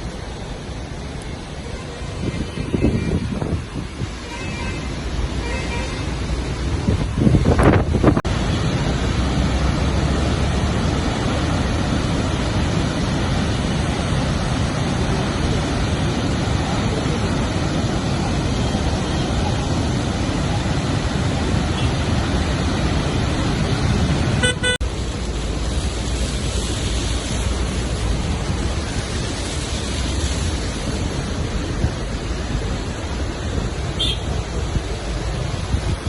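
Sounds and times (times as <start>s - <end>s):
water rushing from dam gates: 0.0s - 36.0s
vehicle horn toot: 24.4s - 24.8s, 34.0s - 34.2s.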